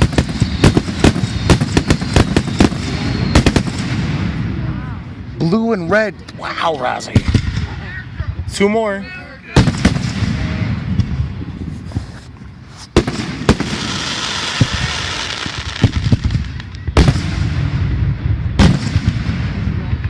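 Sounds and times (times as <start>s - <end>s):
firework bangs: 0.0s - 4.8s, 7.0s - 8.6s, 9.5s - 20.0s
crackling hiss: 0.0s - 5.3s, 9.6s - 19.8s
small firework pops: 14.5s - 17.4s.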